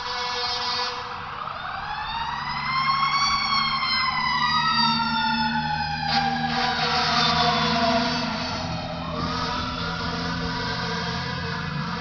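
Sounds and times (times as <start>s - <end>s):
fire engine siren wailing: 0.0s - 12.0s
truck engine rumbling: 0.0s - 12.0s
second siren tone sliding up: 1.4s - 12.0s
horn blast: 6.4s - 12.0s.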